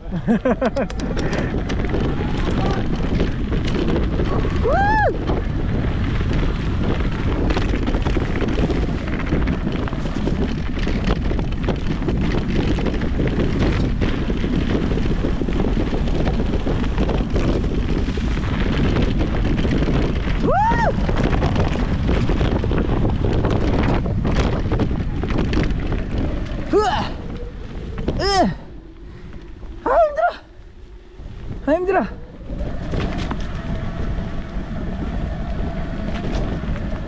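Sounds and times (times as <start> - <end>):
wind rush on microphone: 0.0 - 37.0.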